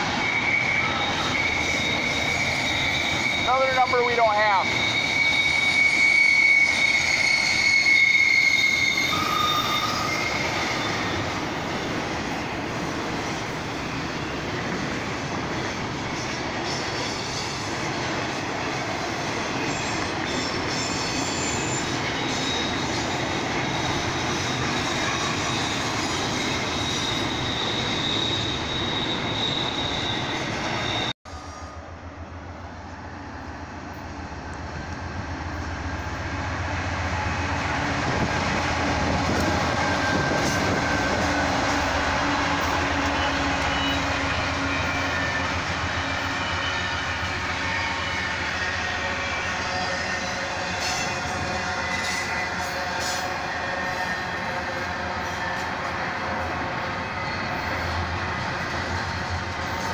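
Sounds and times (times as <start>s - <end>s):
wheel squeal: 0.0s - 3.9s, 4.6s - 11.4s, 19.5s - 31.7s, 39.2s - 55.7s
freight train rumbling: 0.0s - 59.9s.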